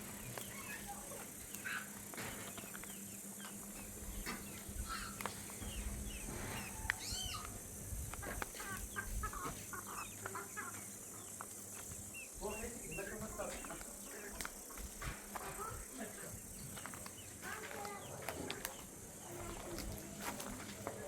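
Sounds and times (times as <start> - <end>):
rising and falling animal call: 6.5 - 7.6.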